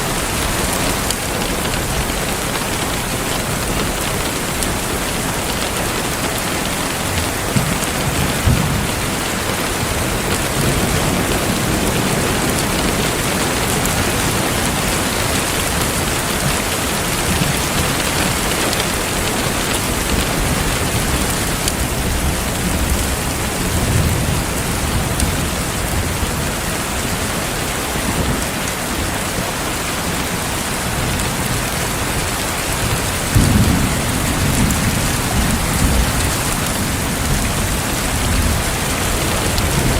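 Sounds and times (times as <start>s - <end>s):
heavy rain falling: 0.0s - 39.9s
thunder rolling: 31.4s - 39.9s.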